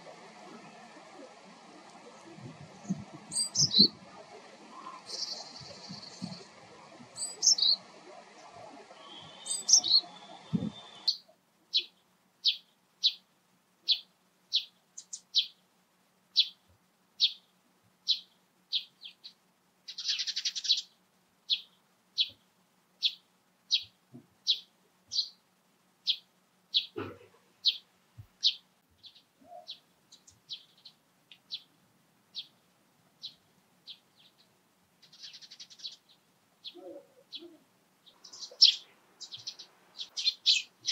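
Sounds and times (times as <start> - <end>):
rising bird calls: 0.0 - 11.9, 19.9 - 20.9, 28.4 - 31.7, 36.6 - 40.9
songbird chirping: 0.0 - 15.7, 16.3 - 40.9.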